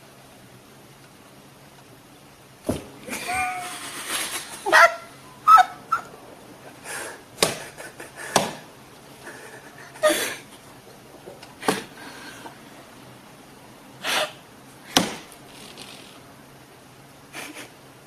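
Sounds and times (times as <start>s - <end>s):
cat chirping: 4.6s - 7.1s
cat paw taps and thumps: 8.3s - 8.6s
cat breathy burst: 14.0s - 14.4s.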